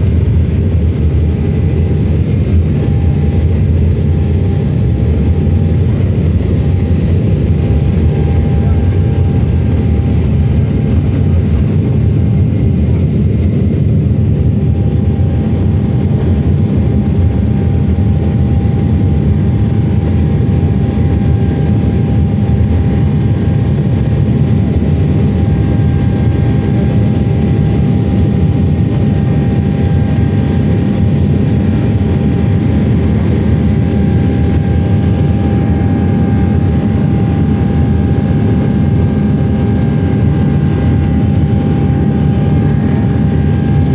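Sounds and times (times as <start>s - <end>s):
airplane engines rumbling: 0.0s - 43.9s
thin steady whine: 0.0s - 43.9s.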